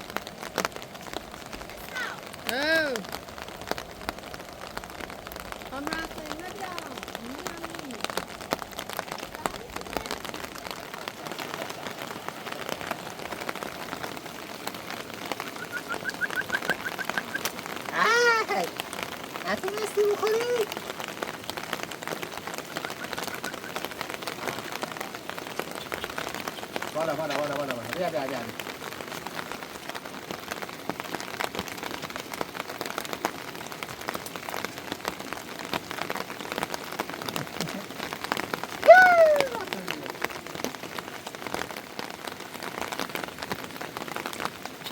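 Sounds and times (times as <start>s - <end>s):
raindrops ticking on surfaces: 0.0s - 44.9s
steady rain falling: 0.0s - 44.9s
high rising and falling call: 15.4s - 17.5s.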